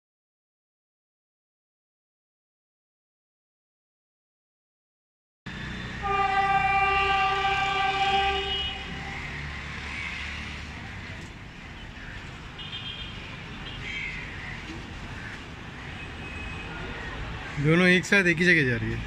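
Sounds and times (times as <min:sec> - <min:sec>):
street traffic: 0:05.5 - 0:19.0
horn long steady note: 0:05.6 - 0:09.4
short high tones: 0:06.0 - 0:09.0.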